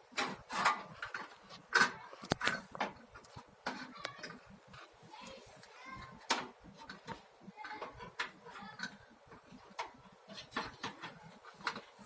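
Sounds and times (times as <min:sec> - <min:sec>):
plastic and metal parts clicking: 0:06.3 - 0:12.0.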